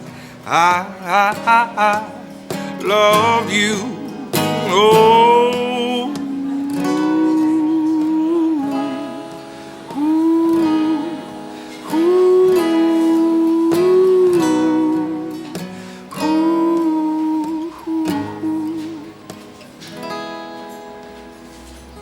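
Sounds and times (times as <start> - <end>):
strummed acoustic guitar: 0.0 - 22.0
man singing held notes: 0.2 - 15.5.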